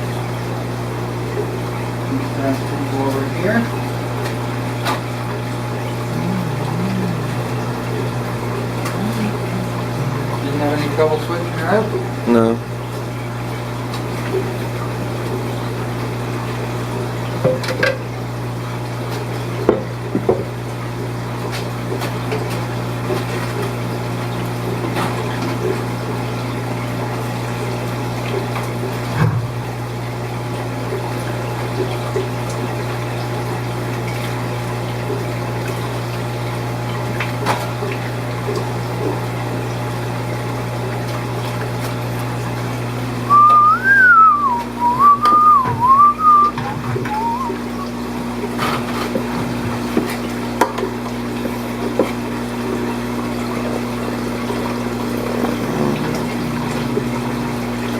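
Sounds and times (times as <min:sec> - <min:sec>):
aquarium pumps humming: 0:00.0 - 0:57.9
trickling water: 0:00.0 - 0:57.9
person whistling: 0:43.3 - 0:47.9.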